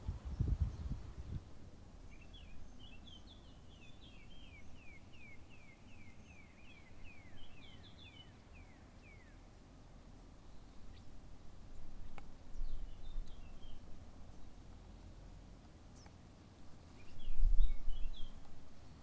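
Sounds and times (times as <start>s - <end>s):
low outdoor background noise: 0.0s - 19.0s
small bird chirping: 2.0s - 9.5s, 10.4s - 11.2s, 12.0s - 14.9s, 15.9s - 16.2s, 16.8s - 19.0s.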